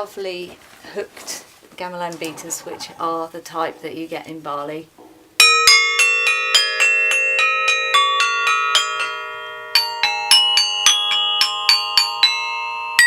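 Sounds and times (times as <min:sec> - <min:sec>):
metallophone bars struck: 0:05.0 - 0:13.0.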